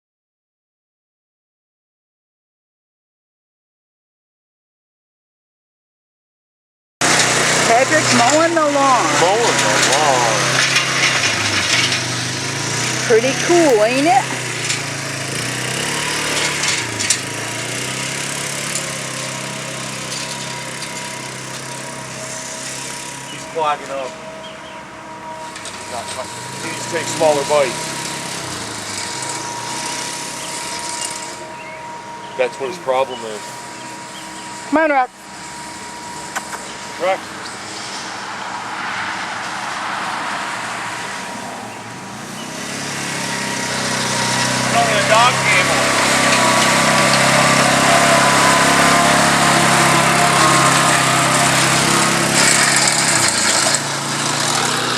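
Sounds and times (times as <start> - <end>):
broad hiss of cutting grass: 7.0 - 24.2, 32.1 - 54.9
lawn mower engine running: 7.0 - 54.9.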